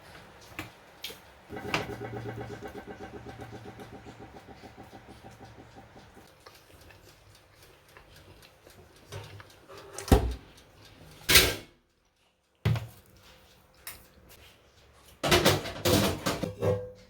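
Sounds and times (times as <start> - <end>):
kitchen clunks and knocks: 1.5 - 5.7, 15.2 - 17.0.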